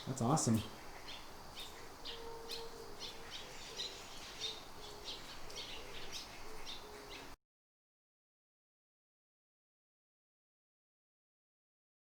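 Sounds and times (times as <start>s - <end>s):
small birds chirping: 0.0s - 7.4s.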